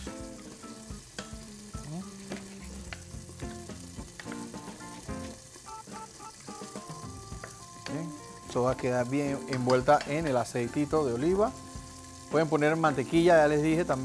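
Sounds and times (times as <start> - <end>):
vegetables sizzling in oil: 0.0 - 14.0
spoon knocking against pot: 9.5 - 10.4.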